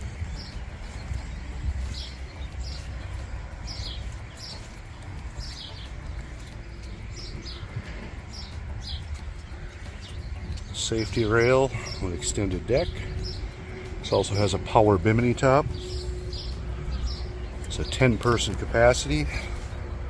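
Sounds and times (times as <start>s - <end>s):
small bird chirping: 0.0s - 12.2s
steady low rumble: 0.0s - 20.0s.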